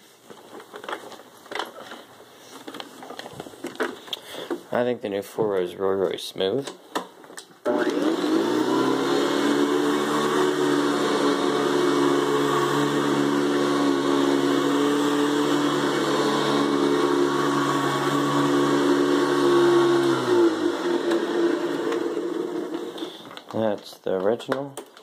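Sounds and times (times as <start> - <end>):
vacuum cleaner running: 7.6 - 23.3.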